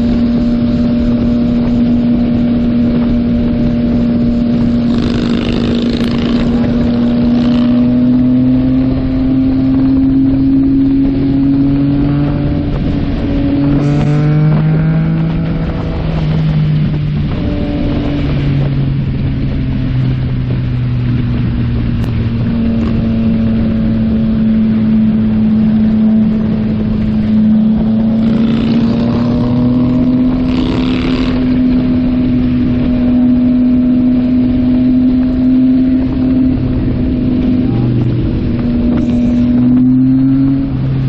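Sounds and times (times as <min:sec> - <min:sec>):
motorcycle engine cruising: 0:00.0 - 0:41.0
wind noise on microphone: 0:00.0 - 0:41.0.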